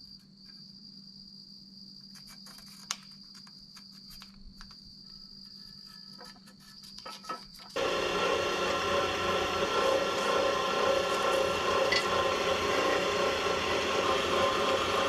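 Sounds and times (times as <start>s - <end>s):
cricket trilling: 0.0s - 7.7s.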